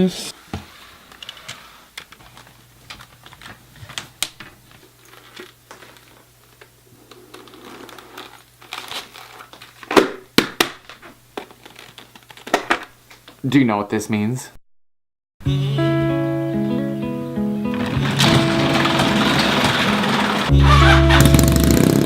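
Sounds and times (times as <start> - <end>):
crinkling and rustling: 0.5 - 13.4, 17.7 - 21.2.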